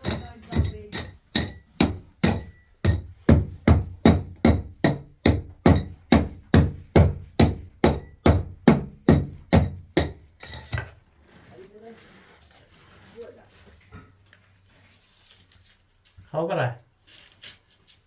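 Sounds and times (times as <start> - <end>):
hammer striking: 0.0 - 10.8.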